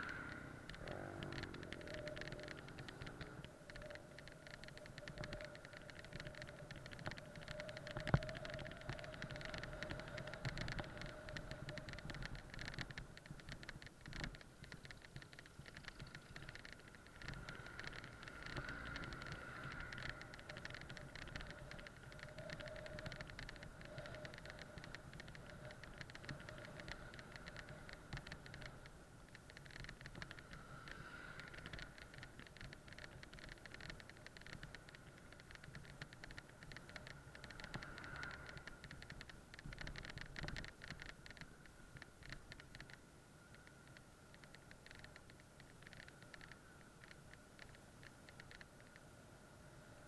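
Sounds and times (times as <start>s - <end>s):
light rattle of small clicks: 0.0s - 50.0s
bike riding whine: 14.8s - 28.9s.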